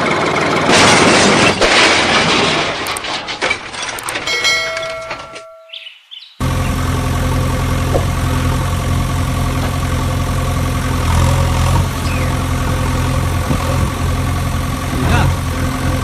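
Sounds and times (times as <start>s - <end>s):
vehicle engine idling: 6.4s - 16.0s.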